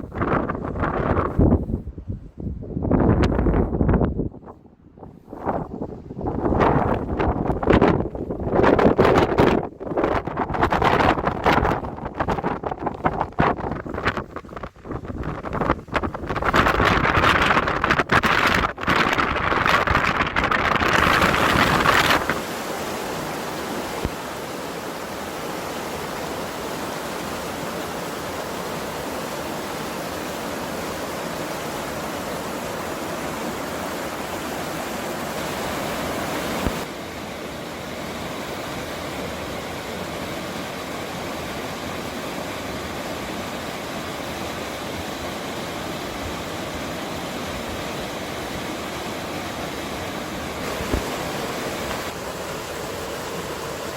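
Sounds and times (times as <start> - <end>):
wind buffeting microphone: 0.0 - 22.6
mountain stream rushing: 10.6 - 53.9.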